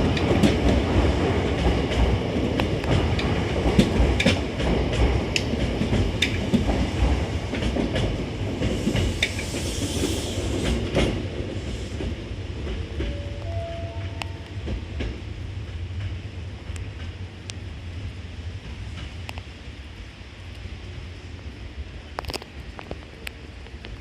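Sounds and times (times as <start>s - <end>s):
wheels clicking over rail joints: 0.0s - 9.6s
train rumbling past: 0.0s - 24.0s.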